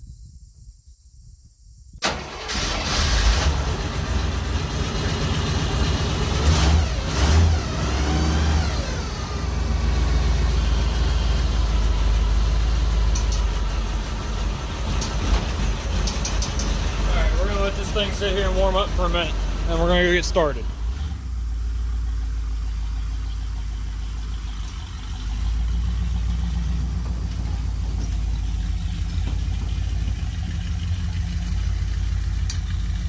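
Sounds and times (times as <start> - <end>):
pickup engine starting and idling: 2.0 - 33.0
engine revving: 2.1 - 21.9.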